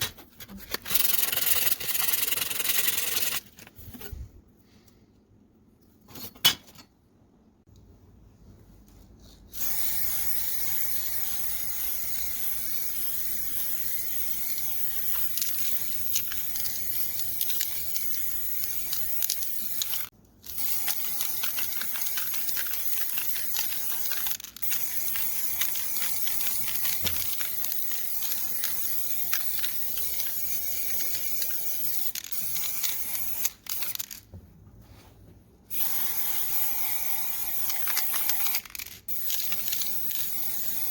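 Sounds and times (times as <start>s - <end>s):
compressed spray hissing: 35.7s - 40.9s.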